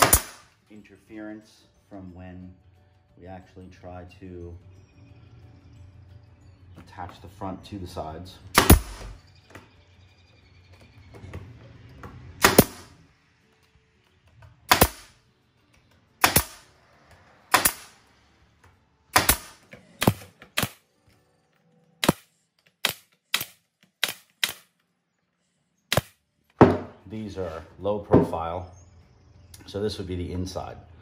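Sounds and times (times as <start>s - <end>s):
nail gun firing: 0.0s - 0.5s, 8.5s - 9.2s, 12.4s - 12.9s, 14.7s - 15.1s, 16.2s - 16.7s, 17.5s - 18.0s, 19.1s - 20.8s, 22.0s - 24.7s, 25.9s - 26.8s.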